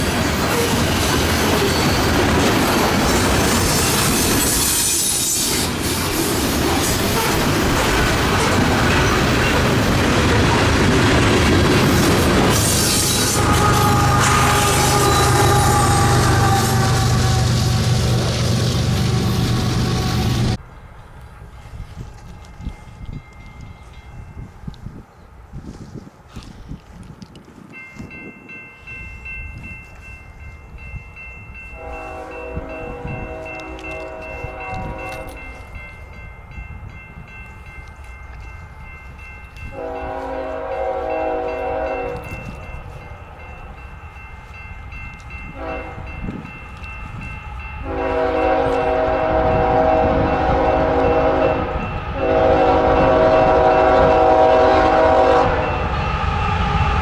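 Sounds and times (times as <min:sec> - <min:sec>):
train rumbling: 0:00.0 - 0:57.0
locomotive air horn blasts: 0:12.6 - 0:18.2, 0:31.8 - 0:35.4, 0:39.7 - 0:42.3, 0:45.5 - 0:46.2, 0:47.8 - 0:56.9.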